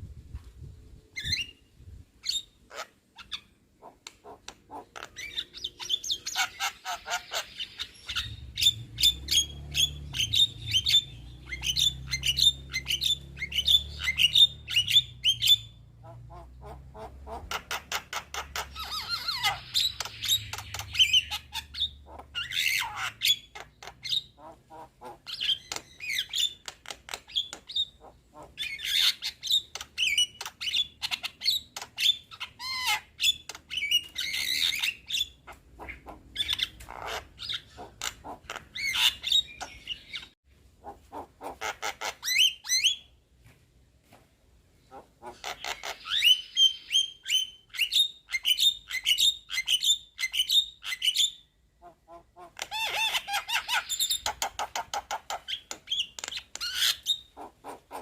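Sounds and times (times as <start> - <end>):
harsh bird calls: 2.2 - 43.2, 44.8 - 58.0.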